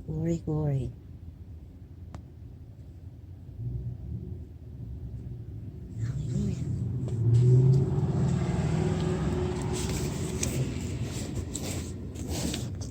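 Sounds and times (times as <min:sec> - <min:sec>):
truck engine revving: 0:05.9 - 0:12.4.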